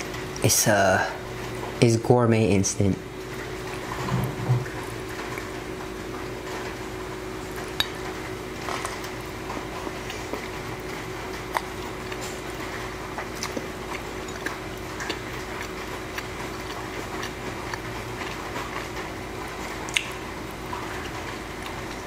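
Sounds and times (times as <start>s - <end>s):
close-miked eating noodles: 3.0s - 22.0s
mouth clicks and smacks: 19.9s - 20.2s.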